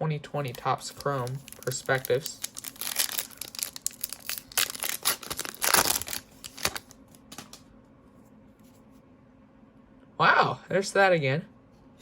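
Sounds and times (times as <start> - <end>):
foil pack tearing and crinkling: 0.5 - 7.0.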